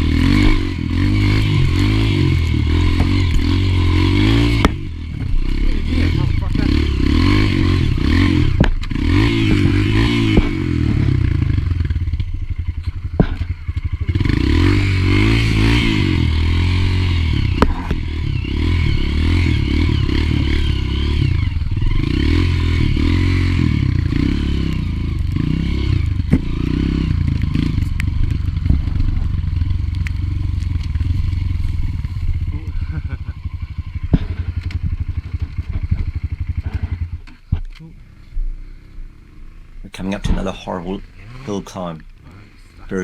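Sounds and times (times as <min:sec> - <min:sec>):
motorbike engine revving: 0:00.0 - 0:43.0
sharp knocks and clatter: 0:13.2 - 0:13.5.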